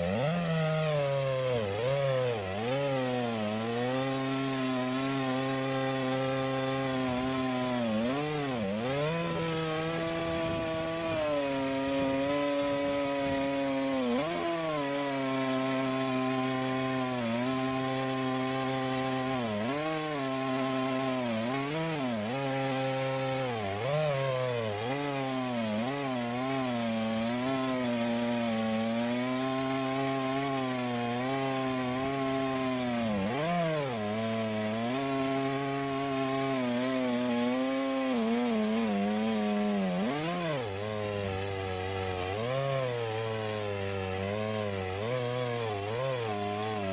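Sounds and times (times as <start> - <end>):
chainsaw ripping a log: 0.0 - 46.9.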